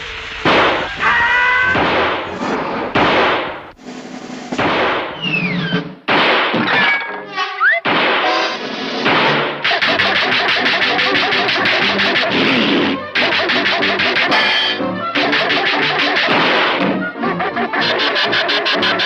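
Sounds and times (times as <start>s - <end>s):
falling whistle-like squeal: 0.0s - 1.8s, 5.2s - 5.8s
cartoon crash and smash effects: 0.3s - 3.6s, 4.5s - 7.0s, 7.7s - 17.0s.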